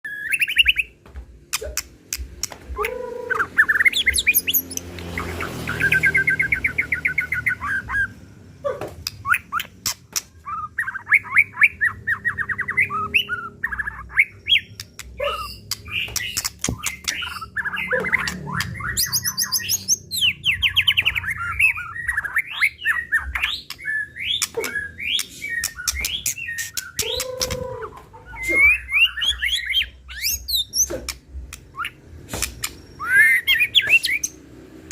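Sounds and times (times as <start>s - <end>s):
songbird singing trills and whistles: 0.1s - 8.2s, 9.0s - 34.4s.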